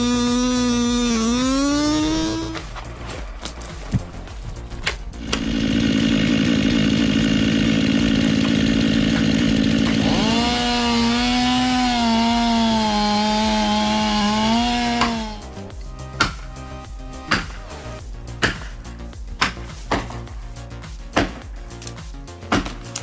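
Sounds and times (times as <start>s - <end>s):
chainsaw running at high revs: 0.0s - 2.7s, 4.7s - 15.7s.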